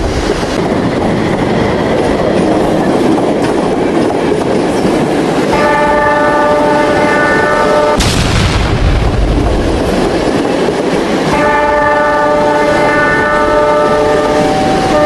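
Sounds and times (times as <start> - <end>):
train clattering on rails: 0.0 - 15.0
train horn chord: 5.5 - 8.0, 11.3 - 15.0.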